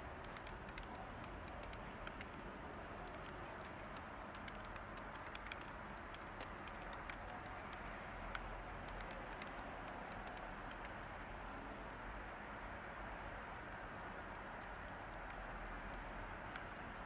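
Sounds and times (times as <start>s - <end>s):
background white noise hiss: 0.0s - 17.0s
computer keyboard typing: 0.2s - 11.0s.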